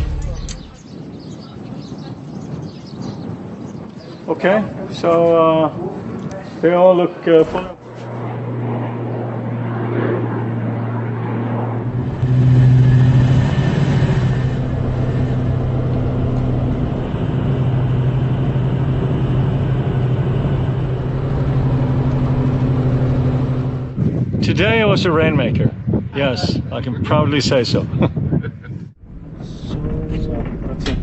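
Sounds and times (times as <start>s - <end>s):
rumble: 0.0s - 0.8s, 7.5s - 24.4s, 28.8s - 31.0s
aircraft engines droning: 0.0s - 2.0s, 4.0s - 25.1s, 28.9s - 31.0s.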